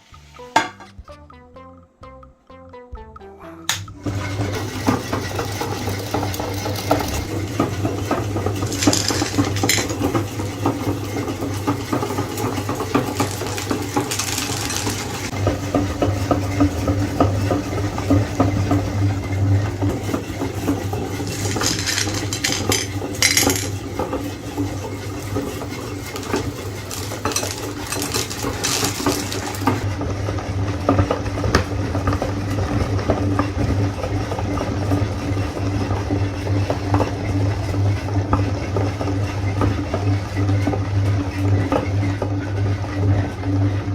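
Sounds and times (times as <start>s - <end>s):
meat grinder humming: 3.8s - 43.9s
hard pieces clinking and rattling: 8.6s - 10.3s, 12.0s - 15.3s, 19.9s - 29.8s.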